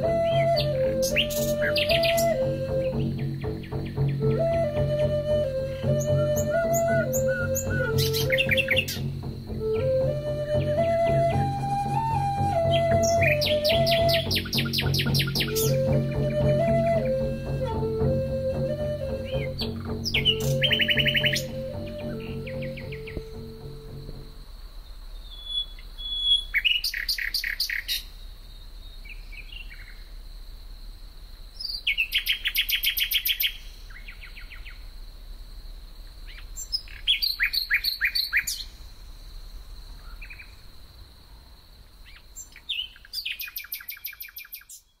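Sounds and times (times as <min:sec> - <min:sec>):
bird singing rapid high notes: 0:00.0 - 0:24.3.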